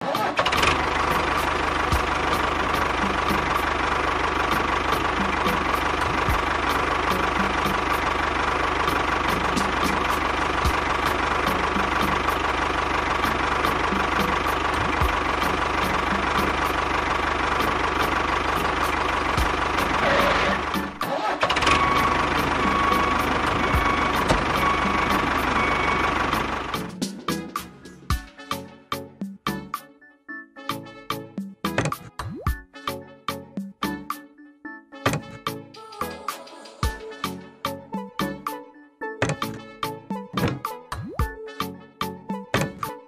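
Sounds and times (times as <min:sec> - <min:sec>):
engine idling: 0:00.0 - 0:28.2, 0:39.2 - 0:39.7.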